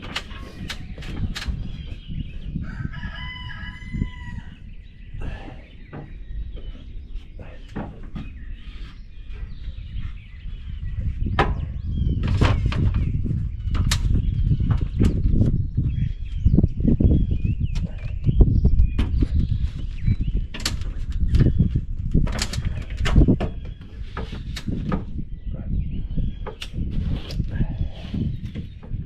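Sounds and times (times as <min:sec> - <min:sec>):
rooster crowing: 0:02.6 - 0:04.6.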